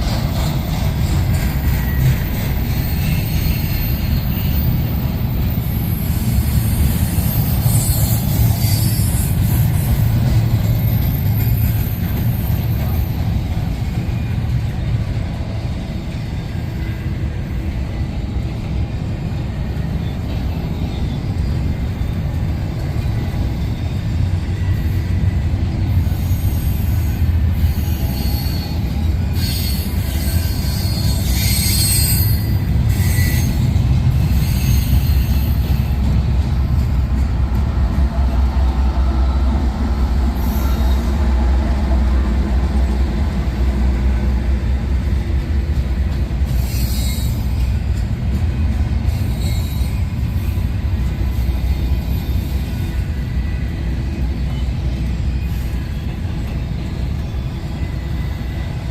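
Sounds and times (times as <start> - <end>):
train wheels rumbling on rail: 0.0 - 58.9
wheel squeal: 1.3 - 13.5, 26.0 - 35.9, 46.5 - 48.0, 49.1 - 50.7.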